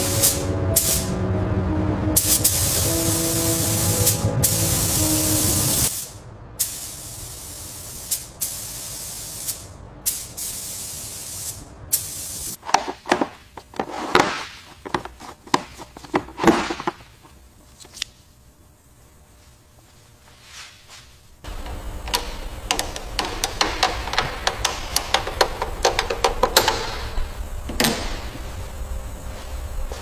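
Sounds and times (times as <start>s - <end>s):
air spray gun hissing: 0.0s - 1.1s, 2.2s - 12.6s
sharp clicks and knocks: 21.5s - 28.1s.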